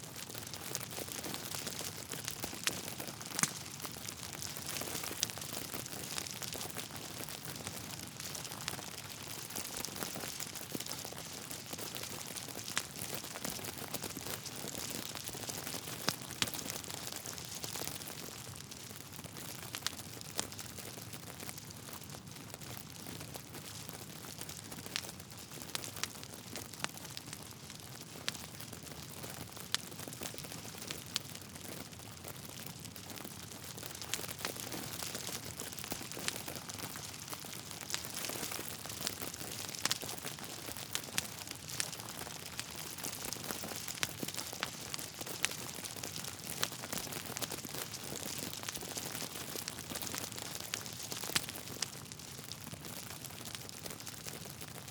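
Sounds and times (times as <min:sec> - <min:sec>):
logs crackling and popping: 0:00.1 - 0:54.9.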